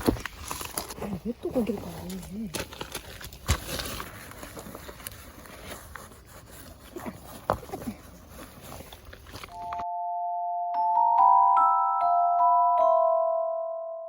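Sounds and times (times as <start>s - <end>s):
glockenspiel-like mallet melody: 9.6s - 14.0s.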